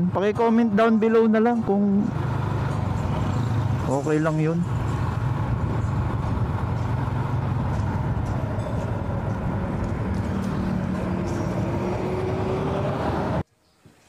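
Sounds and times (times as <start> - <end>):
road and wind noise: 0.0 - 13.5
faint rising tone: 9.6 - 13.4.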